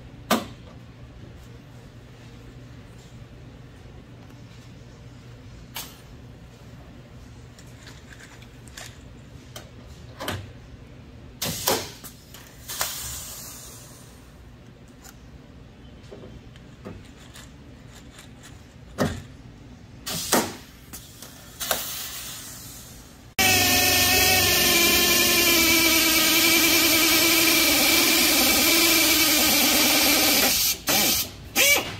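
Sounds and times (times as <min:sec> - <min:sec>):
short hissing bursts: 0:12.6 - 0:14.2.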